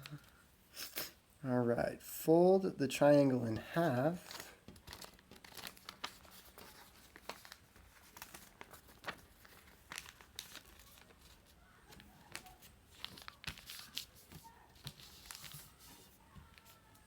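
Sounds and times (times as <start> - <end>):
paper rustling and crinkling: 3.5 - 17.0
small paper crackles: 3.8 - 17.0.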